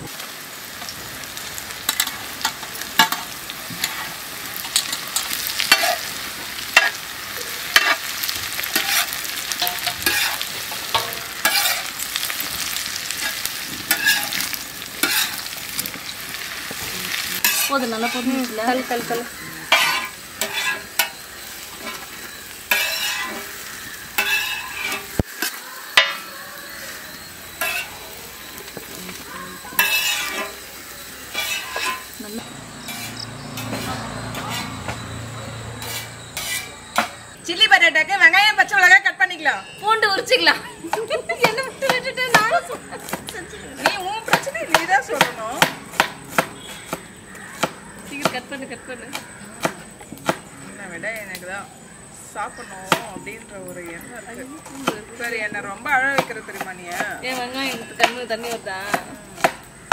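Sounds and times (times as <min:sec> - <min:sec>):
food sizzling in oil: 0:00.0 - 0:59.9
spatula scraping and tapping pan: 0:01.8 - 0:06.1, 0:06.7 - 0:07.1, 0:07.7 - 0:26.3, 0:27.1 - 0:28.0, 0:28.6 - 0:30.6, 0:31.3 - 0:32.2, 0:32.8 - 0:37.2, 0:40.2 - 0:50.6, 0:54.6 - 0:59.9.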